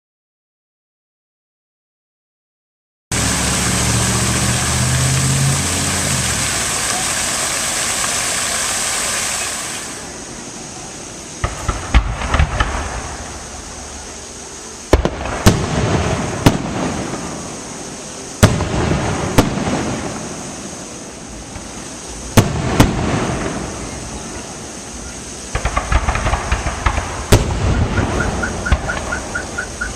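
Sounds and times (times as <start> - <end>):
fireworks crackling: 3.1 - 29.9
fireworks hissing: 3.1 - 29.9
fireworks bangs with rumbling echo: 11.4 - 13.8, 14.9 - 17.8, 18.4 - 20.8, 21.5 - 24.6, 25.5 - 29.9.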